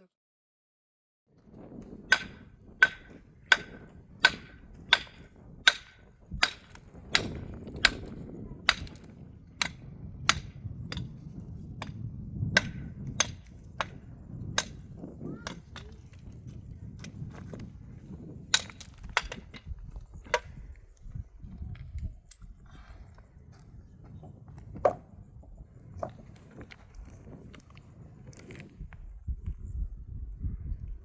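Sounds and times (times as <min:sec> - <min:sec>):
hand tool striking hard material: 0:02.1 - 0:11.2, 0:11.8 - 0:14.0, 0:14.6 - 0:14.8.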